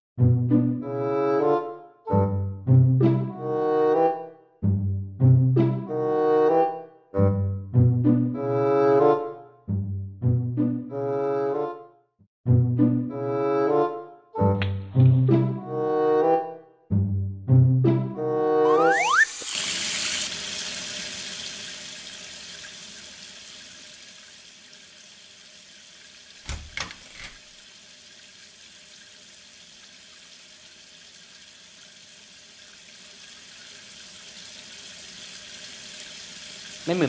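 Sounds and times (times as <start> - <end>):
water running: 18.7 - 37.0
knocking on door: 26.5 - 26.9.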